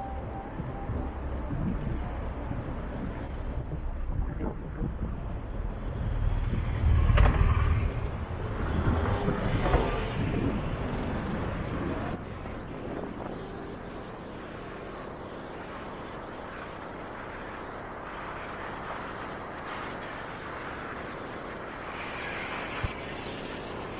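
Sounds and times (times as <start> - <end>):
road traffic passing: 0.0 - 16.4.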